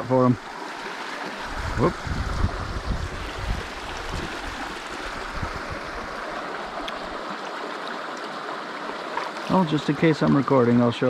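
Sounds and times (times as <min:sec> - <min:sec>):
stream rushing over rocks: 0:00.0 - 0:11.0.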